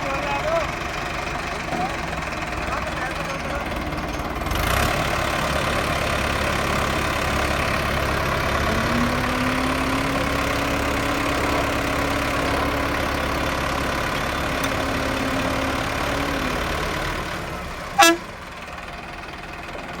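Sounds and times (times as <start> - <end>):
tractor engine straining: 0.0 - 20.0
short horn toot: 18.0 - 18.3.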